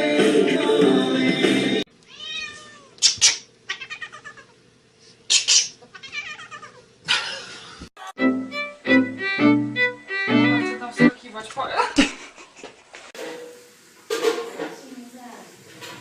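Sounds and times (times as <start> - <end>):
cat meowing: 2.1 - 4.6, 5.9 - 6.8.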